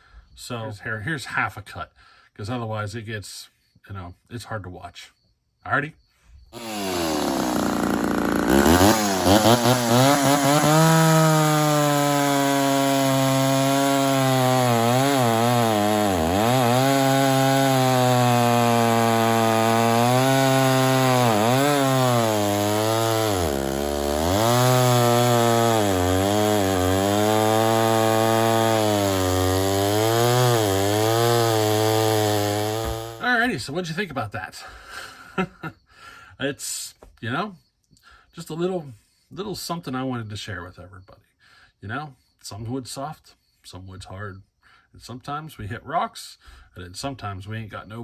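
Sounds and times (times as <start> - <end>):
chainsaw cutting wood: 6.6 - 33.3.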